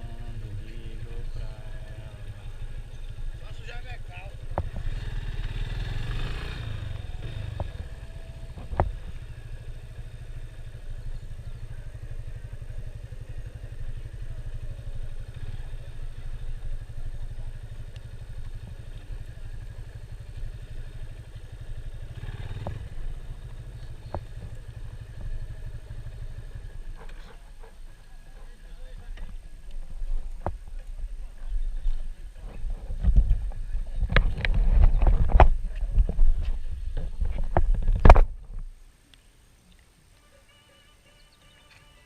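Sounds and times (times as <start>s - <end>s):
motorcycle engine running: 0.0s - 38.5s.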